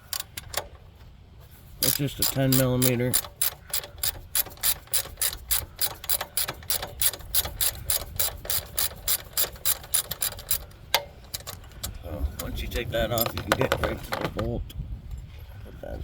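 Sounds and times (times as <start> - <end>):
ratchet wrench clicking: 0.0 - 0.7, 1.8 - 12.0.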